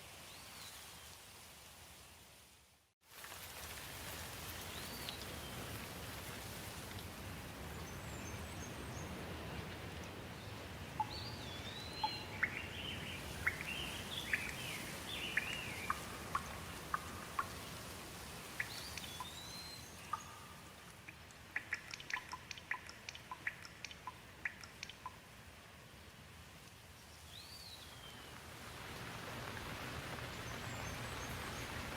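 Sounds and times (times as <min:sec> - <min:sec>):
steady rain: 0:00.0 - 0:31.9
sharp ticks: 0:20.1 - 0:25.2.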